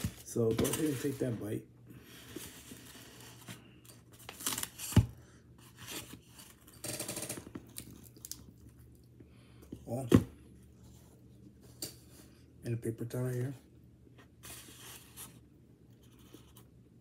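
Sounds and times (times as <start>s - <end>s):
crackly pastry bites: 7.5s - 9.0s
person biting and chewing: 7.7s - 9.0s.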